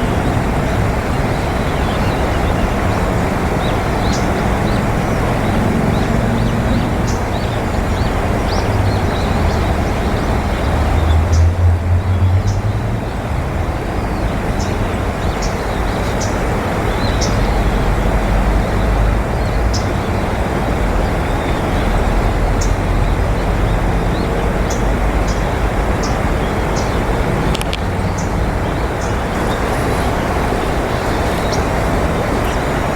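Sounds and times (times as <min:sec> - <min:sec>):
road traffic rumble: 0:00.0 - 0:32.9.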